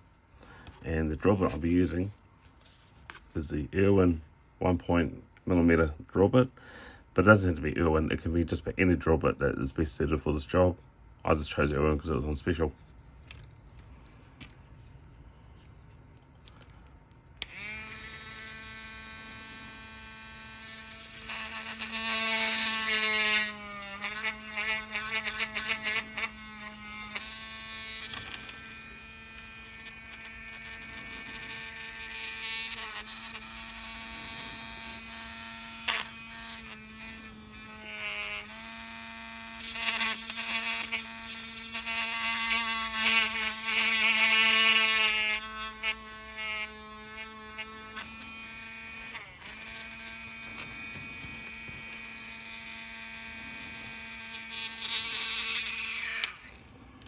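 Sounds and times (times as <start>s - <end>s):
drill bit rasping into plastic: 17.4s - 56.6s
rotary tool whine: 17.4s - 57.0s.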